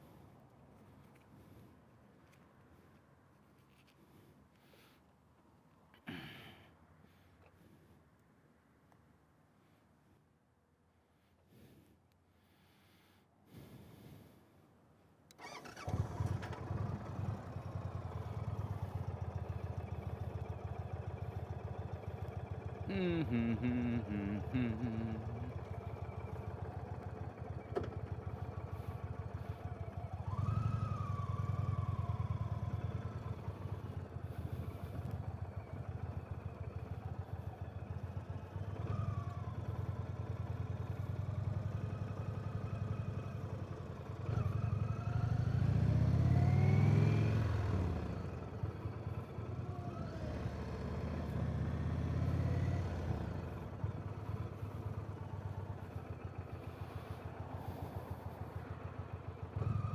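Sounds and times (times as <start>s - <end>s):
motorcycle engine revving: 15.4s - 59.9s.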